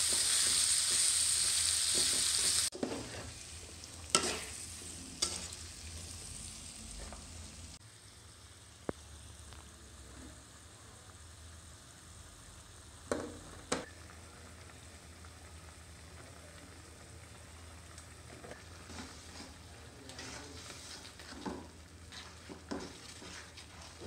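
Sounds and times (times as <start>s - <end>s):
spatula scraping and tapping pan: 0.0s - 6.1s, 18.3s - 24.0s
faint sizzle of frying: 0.0s - 24.0s.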